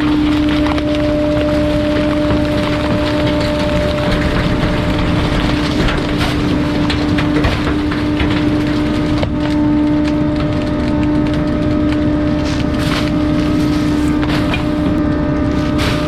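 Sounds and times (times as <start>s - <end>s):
wood cracking and splintering: 0.0s - 16.0s.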